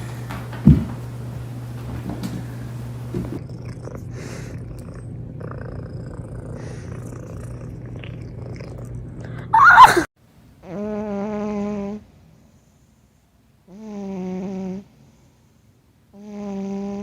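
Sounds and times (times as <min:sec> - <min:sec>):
cat purring: 0:03.3 - 0:09.2
cat crying with wavering pitch: 0:09.5 - 0:10.0.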